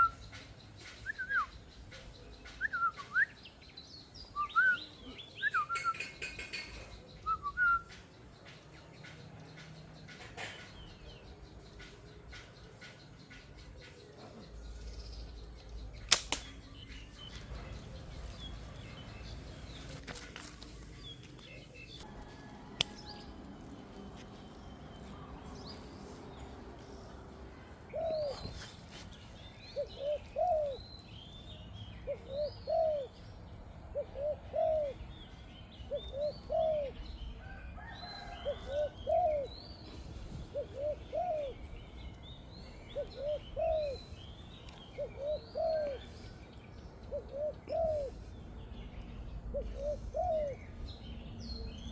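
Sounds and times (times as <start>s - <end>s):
sharp snaps: 16.0s - 17.4s, 22.8s - 23.2s.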